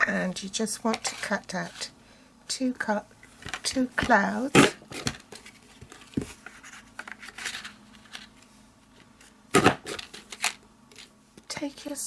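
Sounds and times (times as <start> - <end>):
paper rustling: 5.0 - 8.4.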